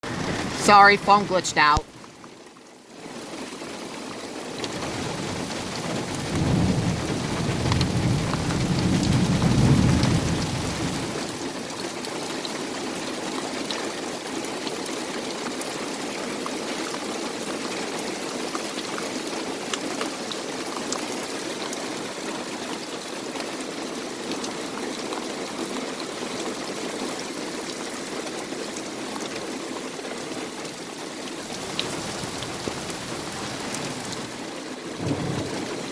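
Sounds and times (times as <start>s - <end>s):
heavy rain pouring: 0.0s - 2.0s, 2.8s - 35.9s
thunder rumble: 4.8s - 11.0s, 31.5s - 35.9s.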